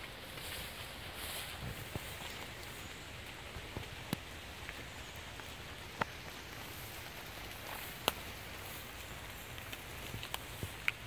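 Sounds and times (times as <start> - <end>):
light rain on leaves: 0.0 - 11.0.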